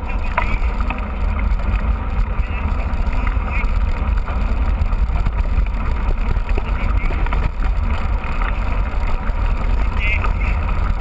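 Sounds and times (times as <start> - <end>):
mountain bike running noise: 0.0 - 11.0
wind buffeting microphone: 0.0 - 11.0.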